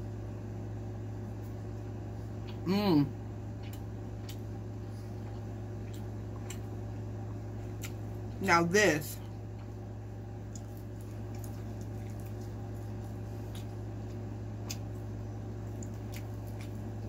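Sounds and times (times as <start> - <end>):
steady low hum: 0.0 - 17.0
wet mouth clicks chewing: 10.4 - 15.0, 15.7 - 17.0.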